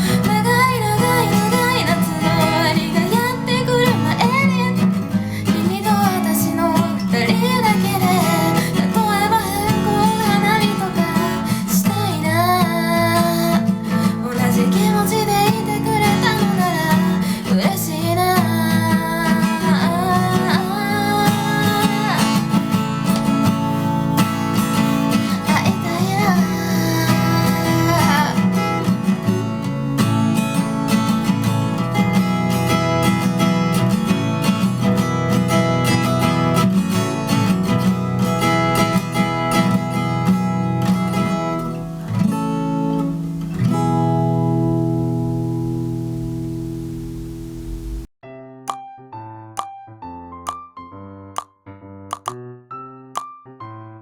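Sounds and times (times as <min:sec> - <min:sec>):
person singing: 0:00.0 - 0:22.7, 0:23.3 - 0:29.4
acoustic guitar strumming: 0:00.0 - 0:48.1.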